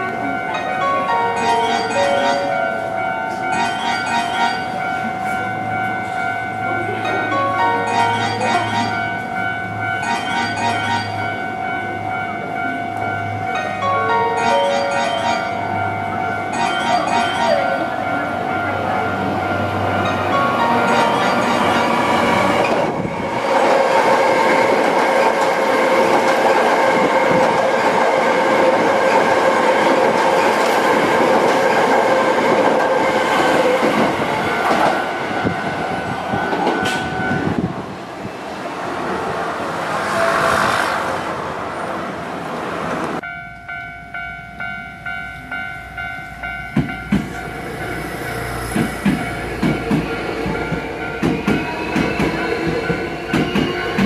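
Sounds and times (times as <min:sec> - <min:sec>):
crossing warning bell ringing: 0:00.0 - 0:38.8, 0:43.1 - 0:54.0
train wheels clattering: 0:46.6 - 0:54.0.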